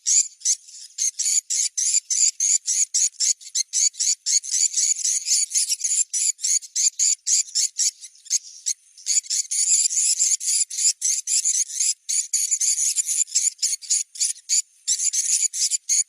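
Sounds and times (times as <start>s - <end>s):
rapid high twittering chirps: 0.0s - 16.0s.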